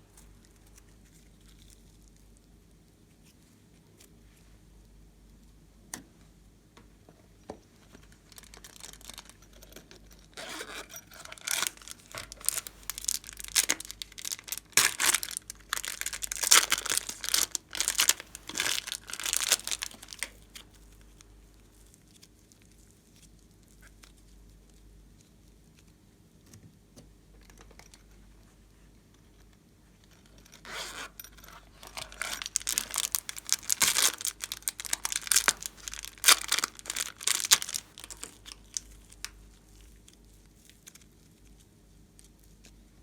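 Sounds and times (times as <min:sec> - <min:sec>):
slime crackling and popping: 0:11.4 - 0:20.7, 0:32.1 - 0:41.1.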